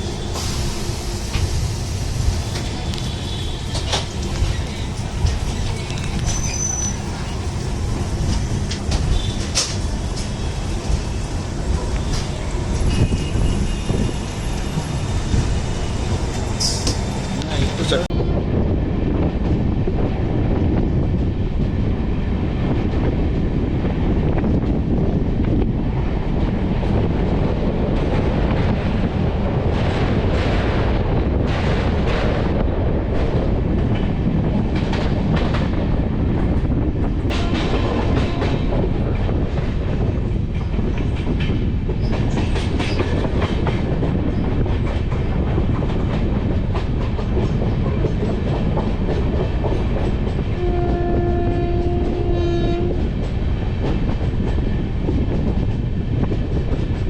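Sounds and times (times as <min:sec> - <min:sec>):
train rumbling on rails: 0:00.0 - 0:57.0
two-tone train horn: 0:37.3 - 0:38.7, 0:50.6 - 0:53.0.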